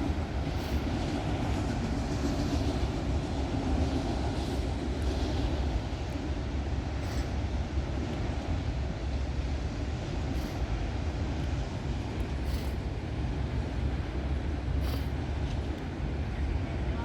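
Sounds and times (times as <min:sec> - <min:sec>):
train wheels rumbling on rail: 0:00.0 - 0:17.0
brief high hisses: 0:14.8 - 0:15.2.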